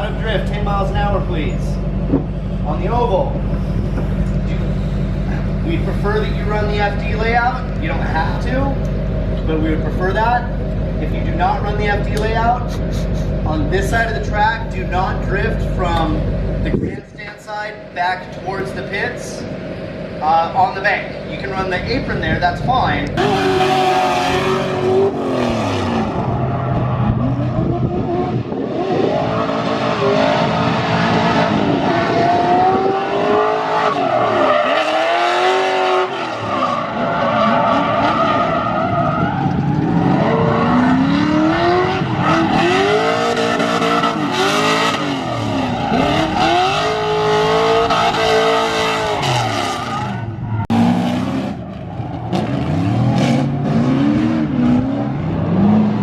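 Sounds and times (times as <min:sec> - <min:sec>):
car engines revving: 0:00.0 - 0:56.0
tyre squeal: 0:42.0 - 0:50.8.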